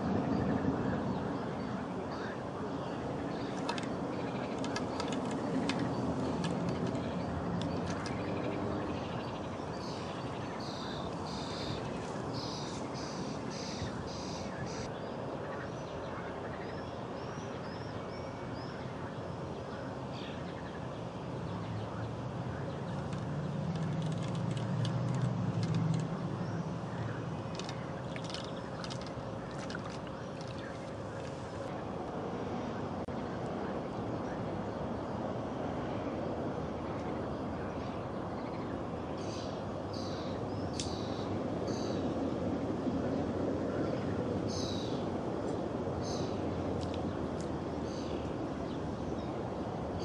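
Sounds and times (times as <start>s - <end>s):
birds chirping: 0.0s - 35.2s, 35.8s - 50.0s
outdoor background hiss: 0.0s - 50.0s.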